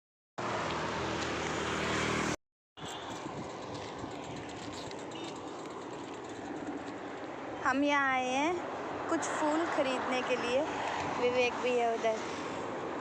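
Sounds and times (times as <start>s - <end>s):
motor vehicle running close by: 0.4s - 7.6s
outdoor traffic noise: 0.4s - 13.0s.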